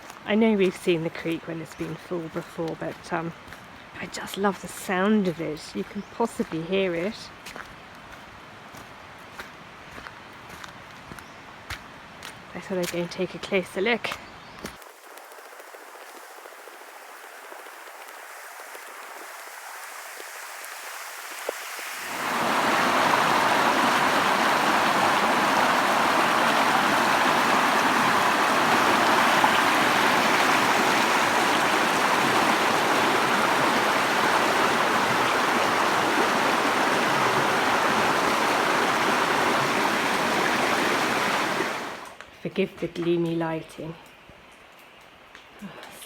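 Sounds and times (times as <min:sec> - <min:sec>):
creek water rushing: 0:00.0 - 0:05.6, 0:14.8 - 0:42.2.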